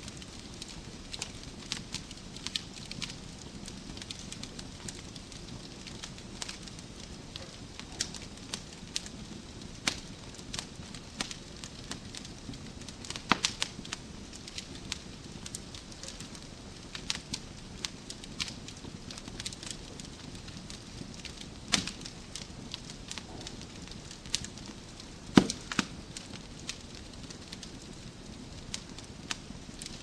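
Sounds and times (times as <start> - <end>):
low rush of flame: 0.0 - 30.0
logs popping and snapping: 13.0 - 14.8, 16.9 - 27.9.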